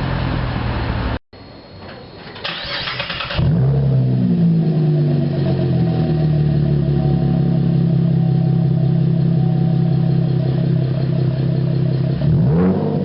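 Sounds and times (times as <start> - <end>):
car engine running: 3.4 - 13.0.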